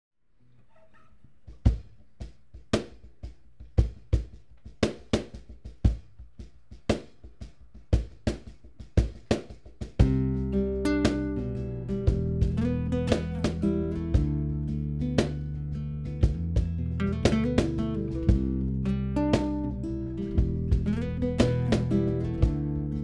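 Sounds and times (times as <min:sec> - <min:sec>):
drum kit playing a beat: 0:01.5 - 0:23.0
band with guitar: 0:10.0 - 0:23.0.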